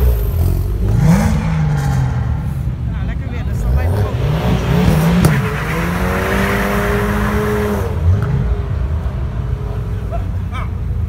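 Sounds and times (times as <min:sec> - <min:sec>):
car engine accelerating away: 0:00.0 - 0:02.9, 0:03.5 - 0:10.6.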